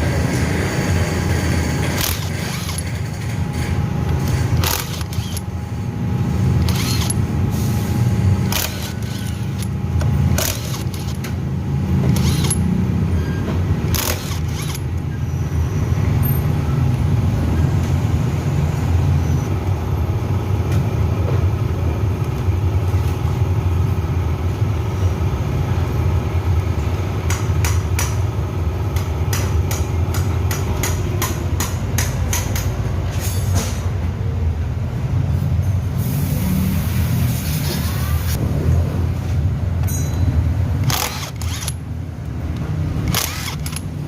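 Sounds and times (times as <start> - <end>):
sharp metallic clicks: 1.8 - 5.6, 6.5 - 7.4, 8.4 - 11.4, 12.0 - 12.7, 13.8 - 15.1, 39.8 - 44.0.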